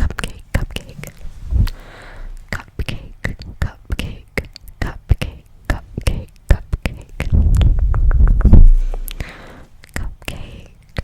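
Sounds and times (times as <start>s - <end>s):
soft breathy hiss: 0.3s - 6.3s, 7.1s - 10.8s
low rumble on microphone: 0.6s - 2.6s, 7.2s - 9.2s.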